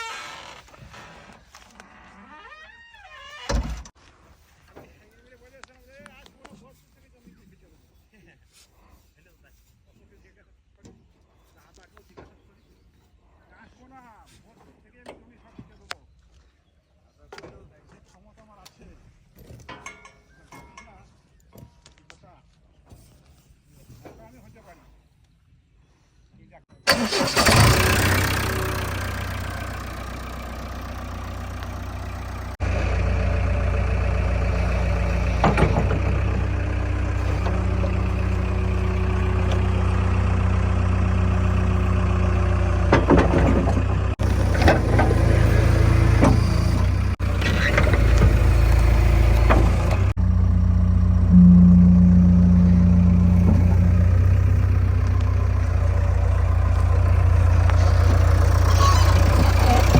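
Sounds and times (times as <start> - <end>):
diesel engine running: 26.9 - 59.9.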